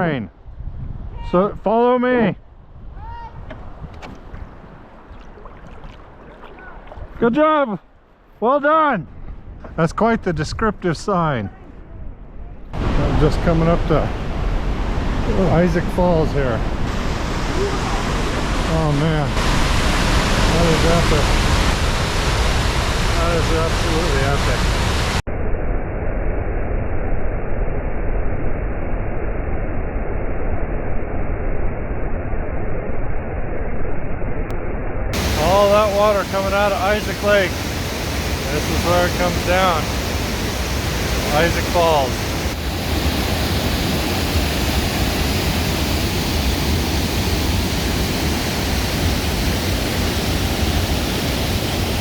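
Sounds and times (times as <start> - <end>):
waterfall pouring: 4.3 - 7.2, 35.2 - 52.0.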